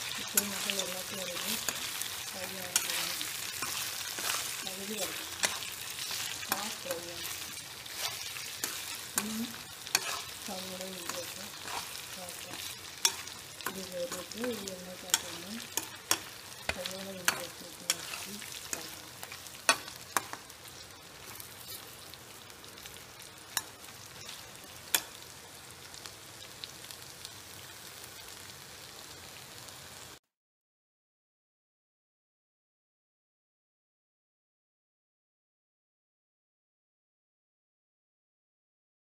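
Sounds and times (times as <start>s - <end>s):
spatula scraping a wok: 0.0s - 22.2s
chicken sizzling in oil: 0.0s - 30.2s.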